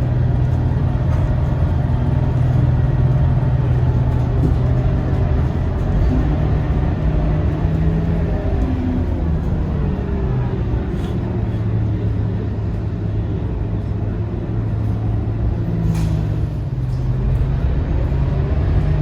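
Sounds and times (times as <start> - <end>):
bus diesel engine running: 0.0 - 19.0
road rumble: 0.0 - 19.0.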